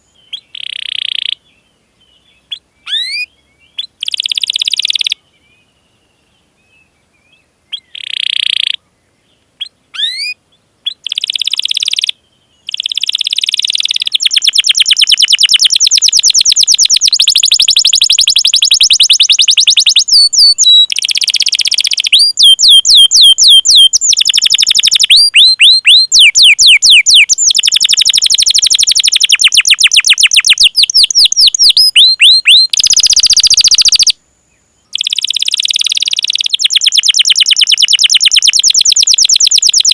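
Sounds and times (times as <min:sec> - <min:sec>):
canary singing: 0:00.0 - 0:05.2, 0:07.7 - 0:08.8, 0:09.6 - 0:34.2, 0:34.9 - 0:39.9.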